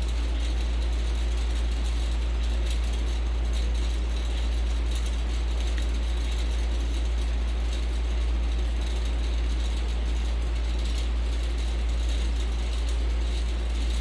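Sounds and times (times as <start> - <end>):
ceiling fan whirring: 4.0 - 14.0.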